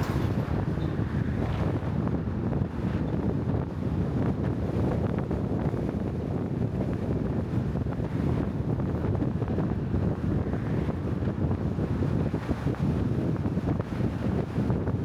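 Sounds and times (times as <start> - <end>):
low rumble: 0.0 - 2.4
wind buffeting microphone: 0.0 - 15.0.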